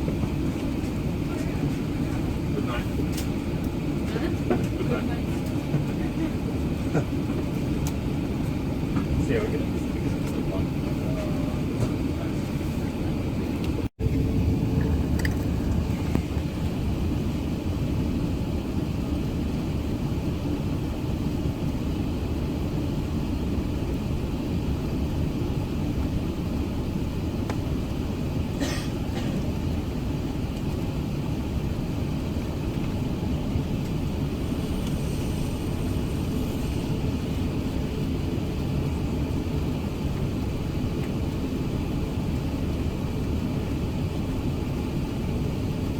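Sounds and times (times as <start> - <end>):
airplane cabin engine rumble: 0.0 - 45.9.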